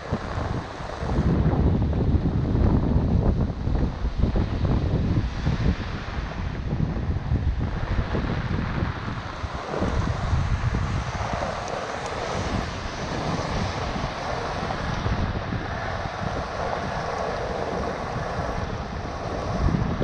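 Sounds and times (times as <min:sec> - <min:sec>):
wind buffeting microphone: 0:00.0 - 0:20.0
steady rain on water: 0:08.6 - 0:20.0.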